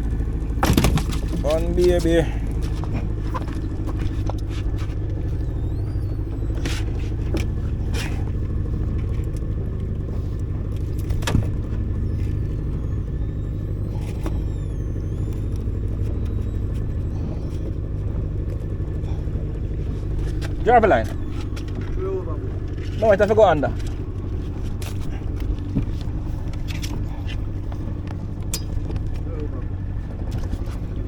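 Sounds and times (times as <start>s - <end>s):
outboard engine droning: 0.0s - 31.0s
sharp knocks on boat: 0.5s - 1.5s.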